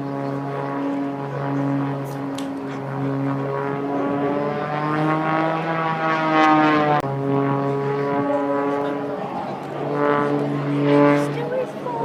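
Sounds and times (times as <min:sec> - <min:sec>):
propeller plane engine buzzing: 0:00.0 - 0:12.0.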